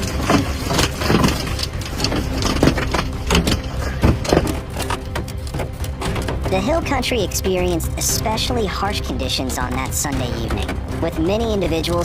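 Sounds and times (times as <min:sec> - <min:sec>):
hailstones pelting a car: 0:00.0 - 0:07.8
car engine running: 0:00.0 - 0:12.0.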